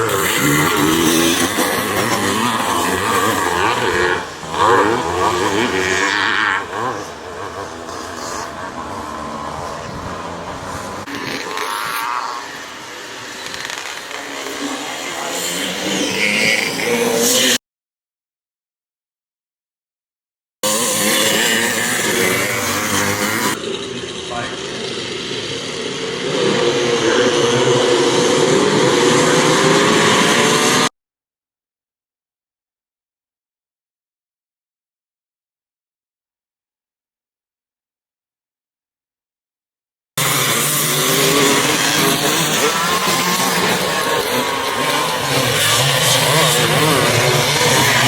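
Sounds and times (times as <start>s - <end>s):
motocross bikes revving: 0.0s - 17.6s, 20.6s - 30.9s, 40.2s - 48.0s.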